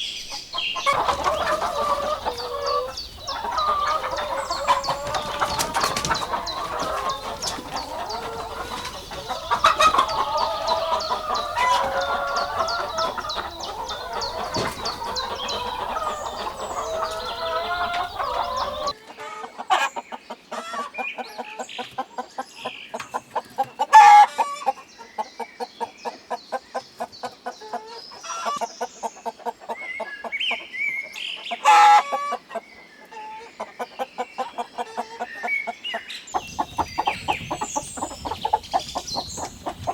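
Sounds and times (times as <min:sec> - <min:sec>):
chickens clucking: 0:00.0 - 0:39.9
loud chicken calls: 0:00.3 - 0:21.5, 0:23.5 - 0:24.8, 0:31.6 - 0:33.5, 0:36.4 - 0:39.9.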